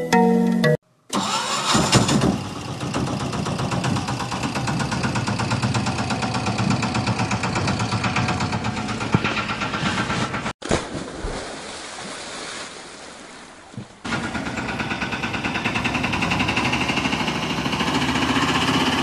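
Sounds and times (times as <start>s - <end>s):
vehicle engine starting and idling: 1.1s - 10.6s, 14.1s - 19.0s.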